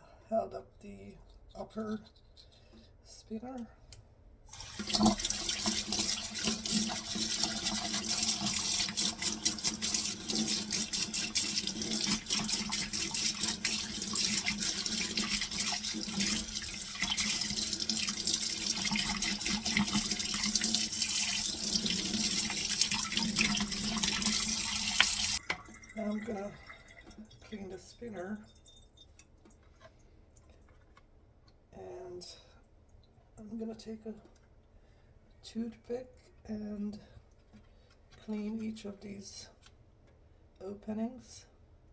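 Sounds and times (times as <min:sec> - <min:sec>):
faucet running into sink: 0:04.5 - 0:27.6
water splashing: 0:04.6 - 0:27.2.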